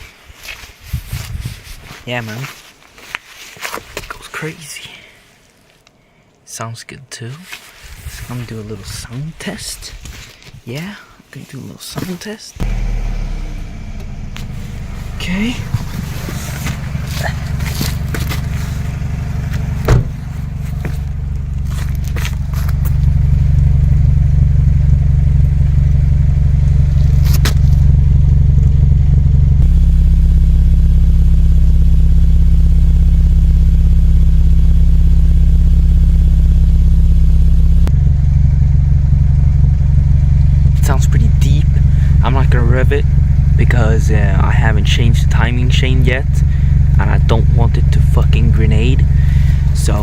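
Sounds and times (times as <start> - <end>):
car engine idling: 12.6 - 50.0
sharp knock: 19.8 - 20.2.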